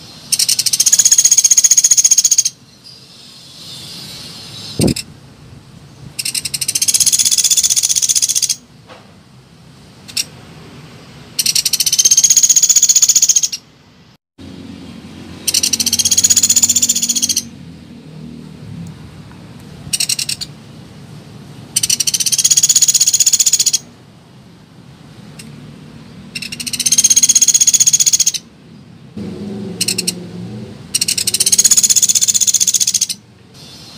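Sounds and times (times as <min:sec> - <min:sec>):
woodpecker rattling call: 0:00.3 - 0:02.6, 0:06.2 - 0:08.6, 0:11.4 - 0:13.6, 0:15.4 - 0:17.5, 0:19.9 - 0:20.5, 0:21.7 - 0:23.9, 0:26.3 - 0:28.5, 0:29.8 - 0:30.2, 0:30.9 - 0:33.2.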